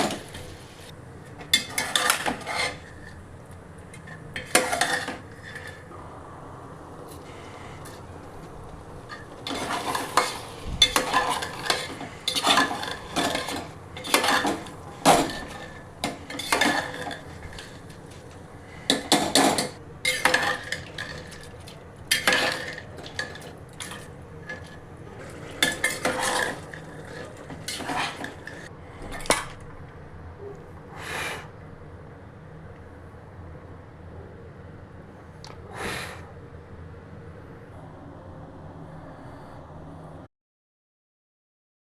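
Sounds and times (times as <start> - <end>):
spoon scraping a cooking pot: 1.4 - 3.3, 3.9 - 5.9, 9.0 - 29.5.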